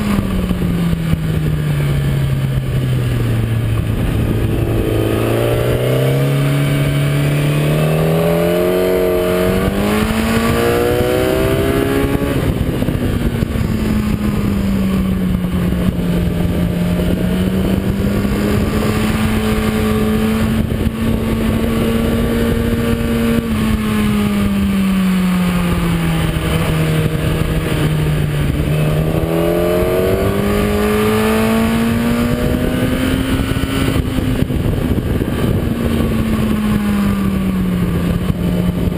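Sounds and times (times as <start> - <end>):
motorcycle engine revving: 0.0 - 38.9
wind rush on microphone: 0.0 - 38.9.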